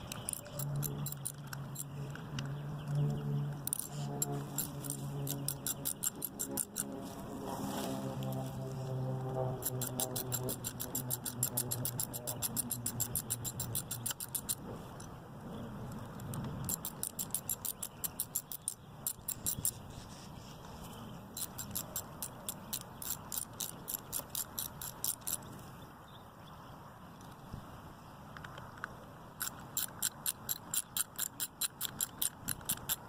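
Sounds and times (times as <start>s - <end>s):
ratchet clicking: 0.0s - 3.0s, 3.6s - 7.0s, 9.6s - 14.6s, 16.2s - 19.8s, 21.4s - 25.5s, 29.4s - 33.0s.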